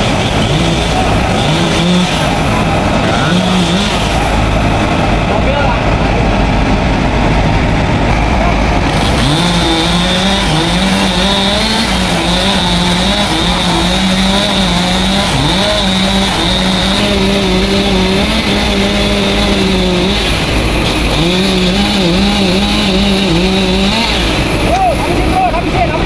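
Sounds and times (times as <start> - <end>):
chainsaw cutting wood: 0.0 - 5.2, 8.1 - 24.9.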